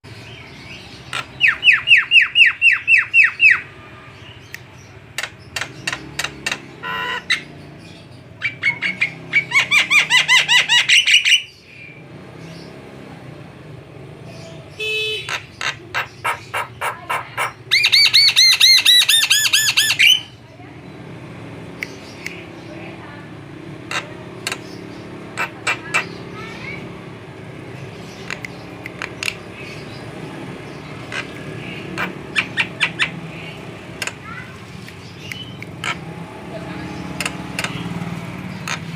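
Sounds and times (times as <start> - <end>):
bird sharp clicking notes: 4.4 - 6.8, 21.6 - 22.6, 23.9 - 26.3, 27.9 - 30.2, 30.9 - 36.2, 37.0 - 38.9
bird harsh call: 14.3 - 20.4, 23.9 - 26.9, 30.7 - 36.1.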